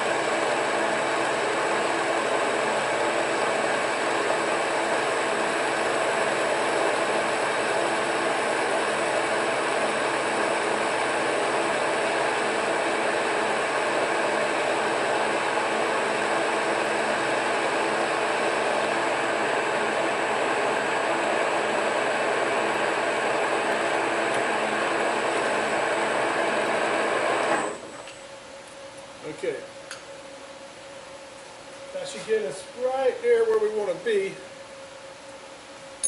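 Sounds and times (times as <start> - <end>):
metal lathe turning: 0.0 - 27.9.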